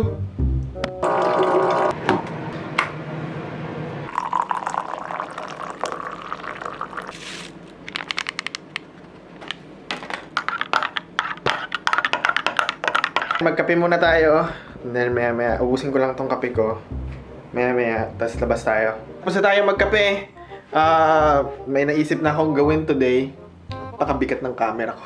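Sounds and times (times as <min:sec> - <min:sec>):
coffee pouring into cup: 0:01.0 - 0:02.0, 0:04.1 - 0:08.2.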